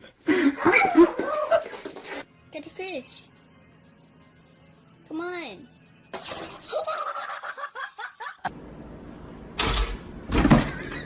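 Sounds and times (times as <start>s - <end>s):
person laughing: 6.7s - 8.5s.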